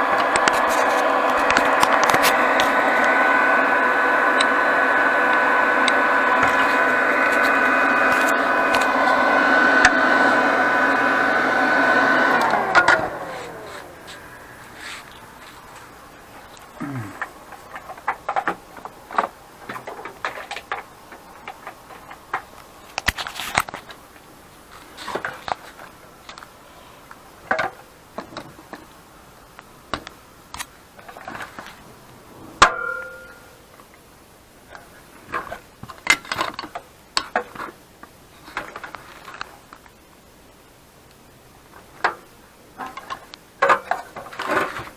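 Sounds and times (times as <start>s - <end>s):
objects clicking and knocking: 14.9s - 24.0s
short ringing tone: 32.6s - 33.6s.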